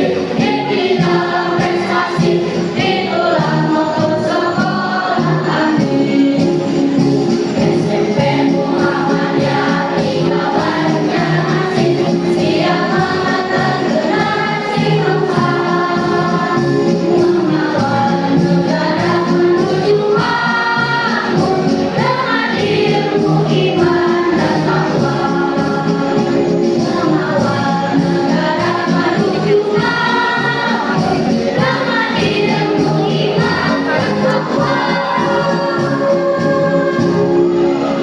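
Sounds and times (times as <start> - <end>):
choir singing: 0.0 - 38.0
musical accompaniment: 0.0 - 38.0.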